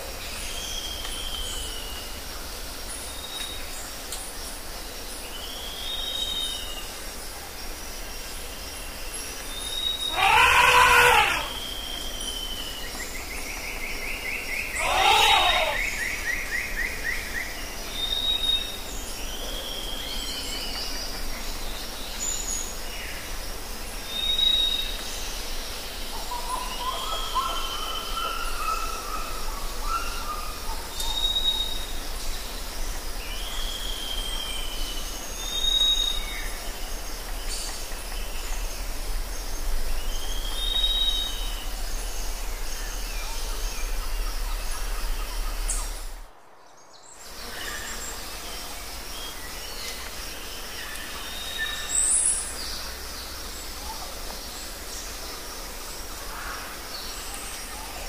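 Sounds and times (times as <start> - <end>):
outdoor background hiss: 0.0 - 58.0
birds calling: 9.2 - 17.3.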